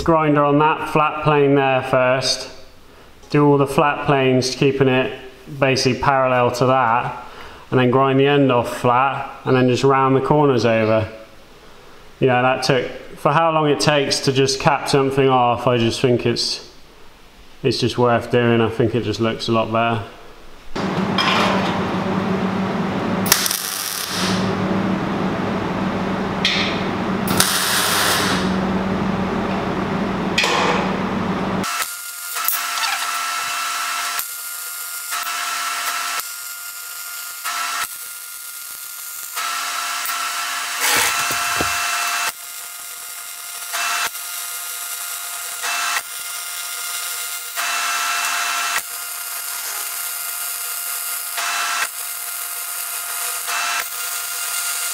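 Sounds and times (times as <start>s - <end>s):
welding machine hum: 20.8s - 54.9s
welder sputtering crackle: 23.2s - 24.5s, 27.3s - 28.6s, 31.6s - 54.9s
angle grinder running: 23.3s - 24.5s, 27.3s - 28.6s, 31.6s - 54.9s.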